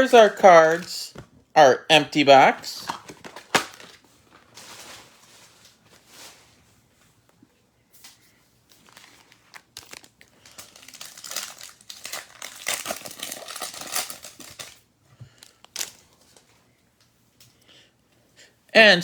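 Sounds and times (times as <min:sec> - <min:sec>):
plastic wrapper crinkling and tearing: 0:00.0 - 0:01.0, 0:02.8 - 0:05.1, 0:08.7 - 0:16.5.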